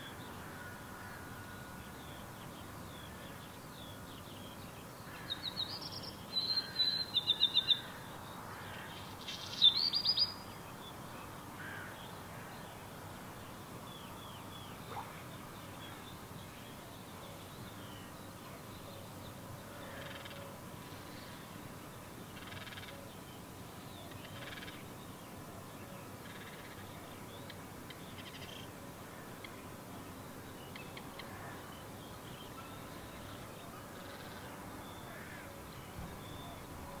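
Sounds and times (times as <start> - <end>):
steady background noise: 0.0 - 37.0
faint scratchy bird calls: 19.7 - 21.5, 22.4 - 23.1, 24.0 - 24.9, 26.2 - 29.7.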